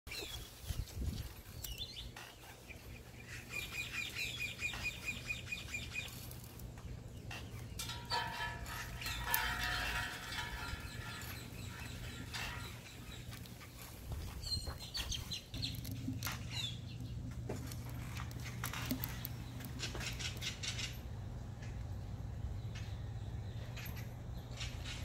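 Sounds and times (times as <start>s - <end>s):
paper and twigs rustling: 0.1s - 3.7s, 4.7s - 7.6s
birds chirping: 0.1s - 25.0s.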